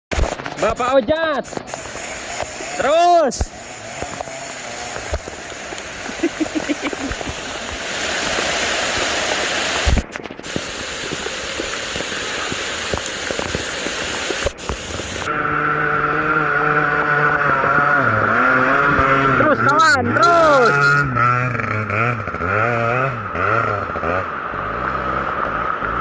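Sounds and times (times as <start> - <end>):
heavy rain hissing: 0.2 - 20.9.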